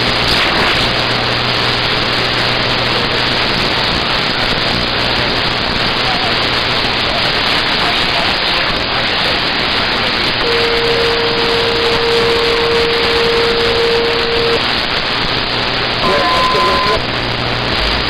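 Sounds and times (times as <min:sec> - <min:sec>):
radio static hiss: 0:00.0 - 0:18.0
steady whistling tone: 0:16.0 - 0:17.0.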